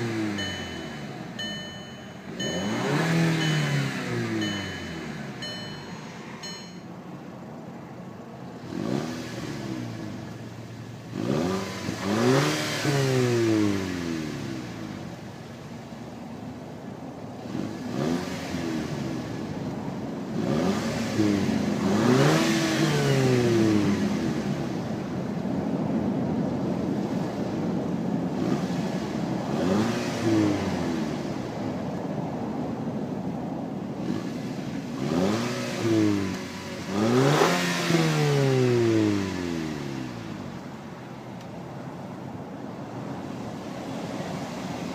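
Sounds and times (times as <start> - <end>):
car engine revving: 0.0 - 6.8, 8.4 - 15.6, 17.4 - 25.2, 28.3 - 31.7, 33.8 - 40.8
electronic beeping: 0.0 - 6.9.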